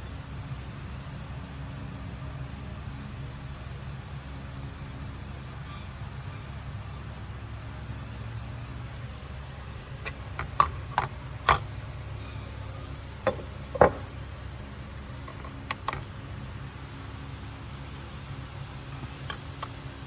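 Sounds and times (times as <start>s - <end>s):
steady low hum: 0.0s - 20.0s
sharp clicks and knocks: 10.0s - 11.7s, 13.2s - 14.2s, 15.2s - 16.2s, 18.9s - 20.0s.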